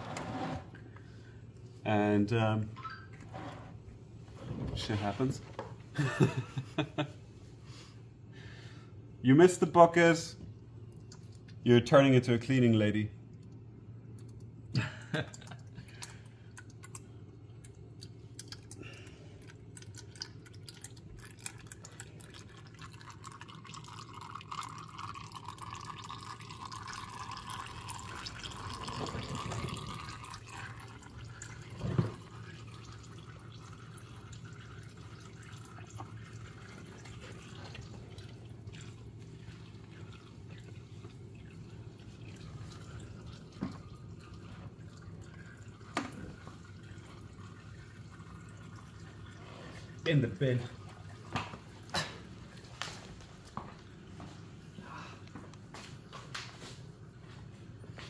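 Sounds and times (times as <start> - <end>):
oil pouring into bucket: 18.0 - 51.4.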